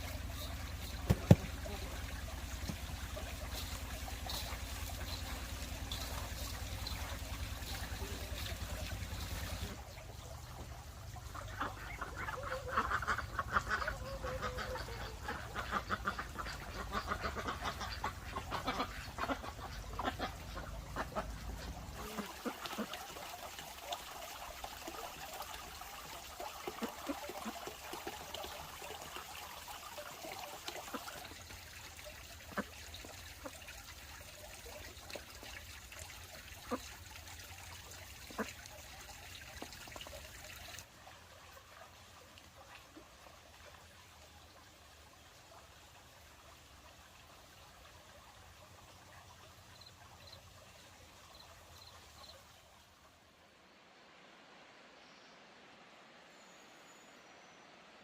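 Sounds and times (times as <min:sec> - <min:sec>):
ducks quacking: 0:11.2 - 0:23.1, 0:38.2 - 0:38.6.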